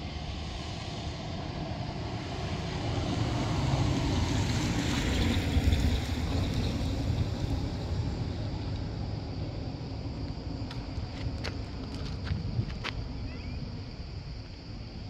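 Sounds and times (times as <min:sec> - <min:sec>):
wind on microphone: 0:10.9 - 0:14.4.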